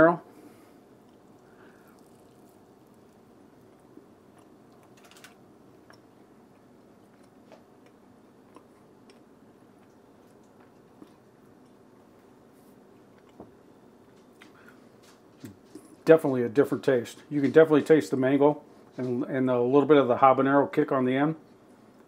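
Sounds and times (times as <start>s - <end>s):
faint chewing: 1.0s - 16.1s.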